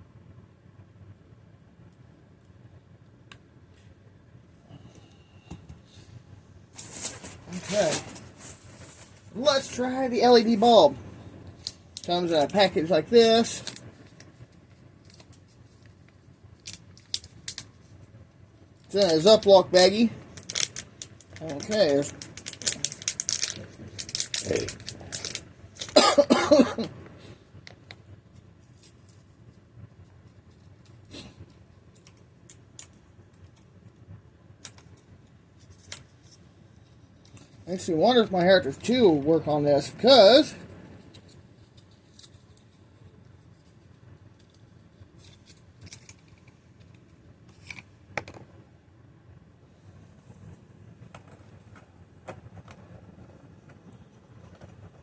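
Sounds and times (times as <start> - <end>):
plastic bag crinkling: 6.8 - 11.0, 18.9 - 26.8
person coughing: 25.9 - 27.0.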